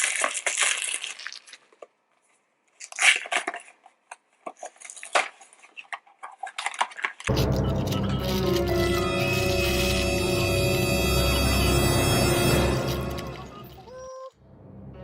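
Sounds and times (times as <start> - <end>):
packaging crinkly rustles: 0.0 - 10.6
music: 7.3 - 15.0.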